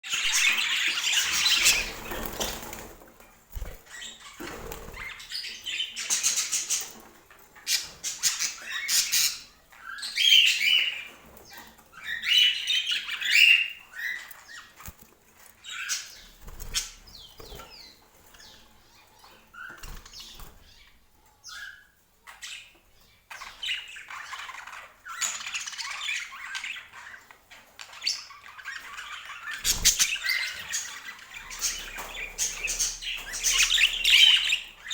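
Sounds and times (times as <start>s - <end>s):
budgerigars chirping and chattering: 0.1s - 34.9s
wing flapping: 29.6s - 30.3s.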